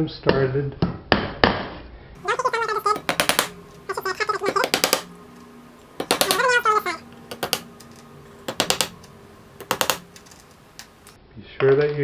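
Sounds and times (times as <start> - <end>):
hammer tapping nails: 2.9 - 3.6, 4.4 - 5.1, 6.0 - 6.6, 7.3 - 7.7, 8.5 - 9.0, 9.6 - 11.1.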